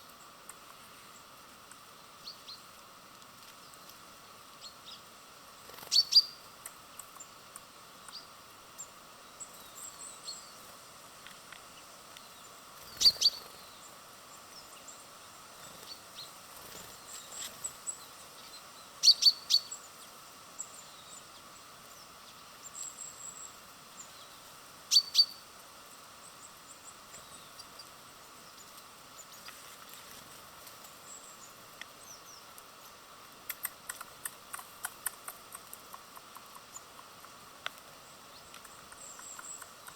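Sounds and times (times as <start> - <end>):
small birds chirping: 0.0 - 39.9
loud sharp high bird calls: 5.8 - 6.4, 12.8 - 13.9, 17.9 - 20.0, 24.9 - 25.5
quick run of ticks: 33.4 - 39.9.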